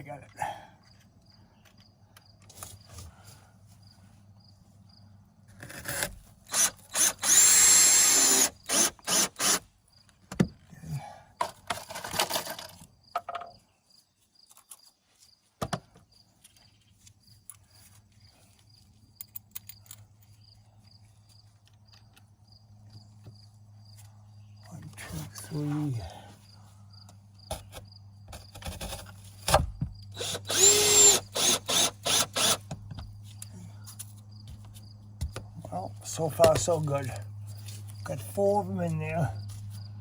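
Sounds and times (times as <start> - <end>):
power drill driving screws: 5.8 - 9.6, 30.2 - 32.7
insect chirping: 6.5 - 10.1.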